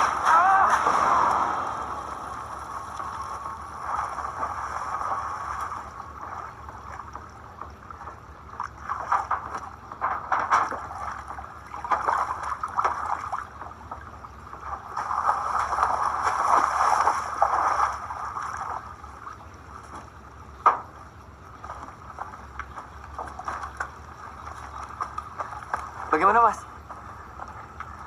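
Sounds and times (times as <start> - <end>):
water splashing and sloshing: 0.0 - 28.0.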